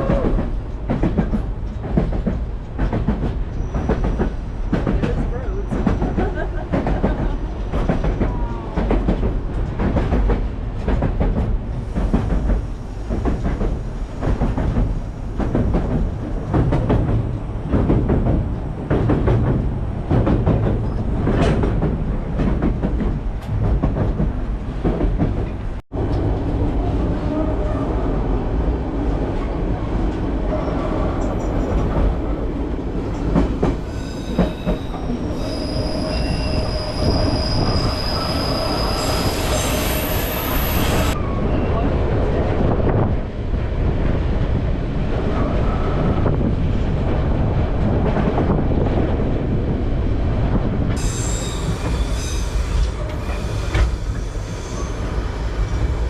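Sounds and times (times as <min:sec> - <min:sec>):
train wheels clacking on rails: 0:00.0 - 0:25.8, 0:30.1 - 0:41.1, 0:51.0 - 0:56.0
high-pitched wheel squeal: 0:33.9 - 0:41.7, 0:51.0 - 0:56.0.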